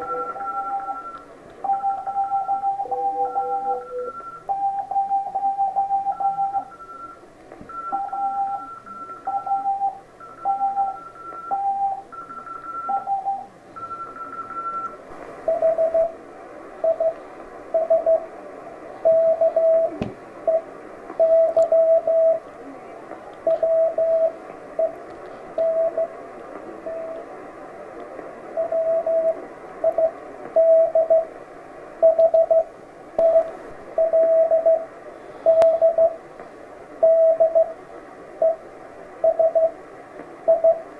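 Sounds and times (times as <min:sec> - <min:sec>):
morse code tones: 0:00.0 - 0:16.2, 0:16.8 - 0:18.3, 0:19.0 - 0:22.4, 0:23.4 - 0:25.0, 0:25.6 - 0:26.2, 0:28.6 - 0:31.3, 0:32.0 - 0:36.2, 0:37.0 - 0:37.8, 0:39.2 - 0:39.8, 0:40.5 - 0:40.8
radio band hiss: 0:13.4 - 0:21.2, 0:21.9 - 0:30.6, 0:34.8 - 0:40.9.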